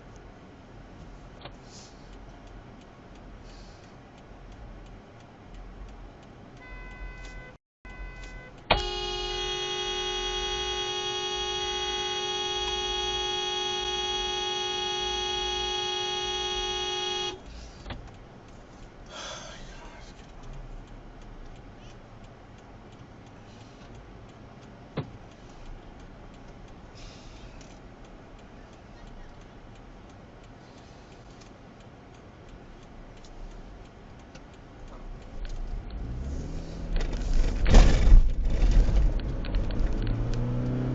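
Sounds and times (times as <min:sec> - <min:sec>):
road noise: 0:00.0 - 0:40.9
car horn blast: 0:06.6 - 0:17.4.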